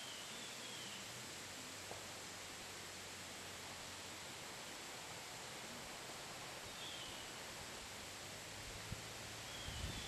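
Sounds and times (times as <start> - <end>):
outdoor ambience hiss: 0.0 - 10.0.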